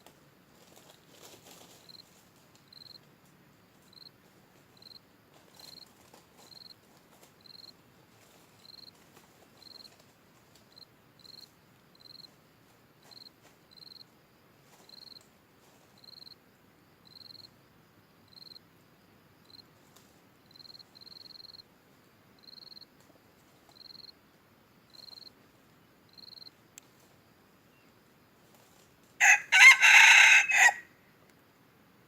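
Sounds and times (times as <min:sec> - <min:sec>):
cricket chirping: 0:00.0 - 0:32.0
faint clicks: 0:26.7 - 0:27.2.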